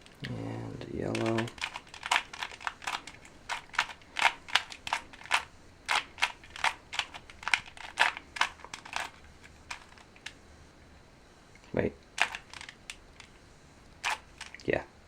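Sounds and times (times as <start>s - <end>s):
puzzle cube plastic clicks: 1.1s - 10.4s, 12.2s - 13.4s, 14.0s - 14.7s.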